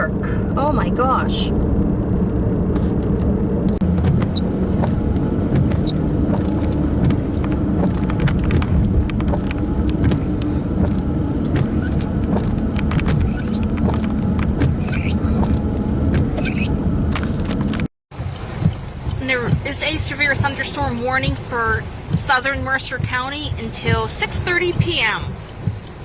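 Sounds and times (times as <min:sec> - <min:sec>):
car engine idling: 0:00.0 - 0:26.0
raindrops tapping on car: 0:02.9 - 0:16.4, 0:17.5 - 0:26.0.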